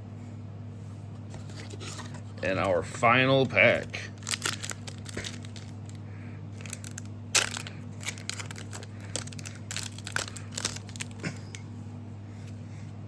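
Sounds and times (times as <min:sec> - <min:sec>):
steady low hum: 0:00.0 - 0:13.0
foil wrapper crinkling and tearing: 0:03.4 - 0:06.0, 0:06.6 - 0:11.6.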